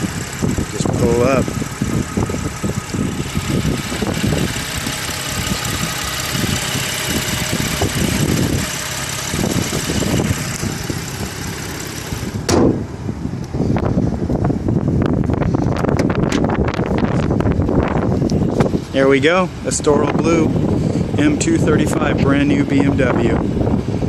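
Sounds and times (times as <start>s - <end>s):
car engine idling: 0.0s - 24.0s
sharp thump: 12.3s - 12.8s.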